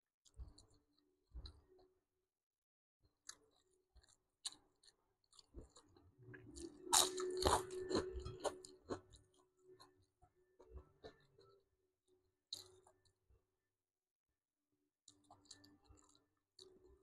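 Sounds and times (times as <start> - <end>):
person chewing and crunching: 4.0 - 9.4.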